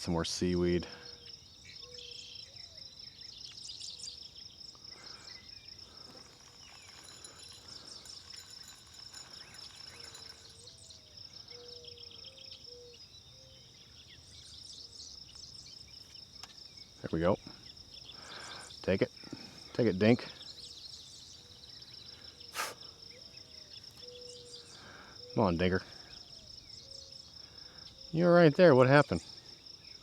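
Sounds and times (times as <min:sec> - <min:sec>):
bird chirps: 0:00.0 - 0:30.0
insects trilling: 0:00.0 - 0:30.0
short whistled calls: 0:22.4 - 0:23.2.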